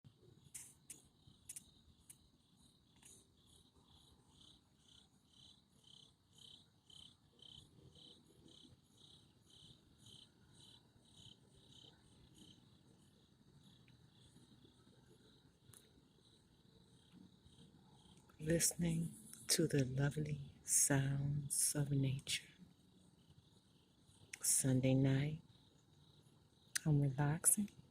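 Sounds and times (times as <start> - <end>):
crickets chirping: 0.0 - 27.9.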